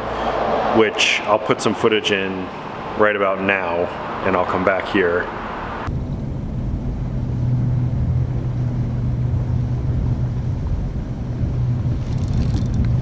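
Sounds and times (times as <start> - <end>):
low mechanical hum: 3.9 - 13.0.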